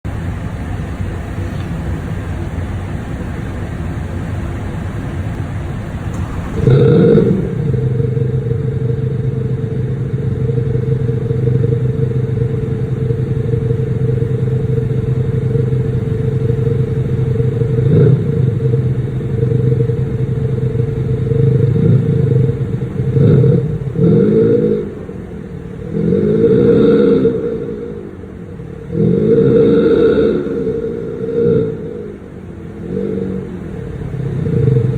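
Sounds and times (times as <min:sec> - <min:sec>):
car engine idling: 0:00.0 - 0:34.9
car engine revving: 0:00.0 - 0:34.9.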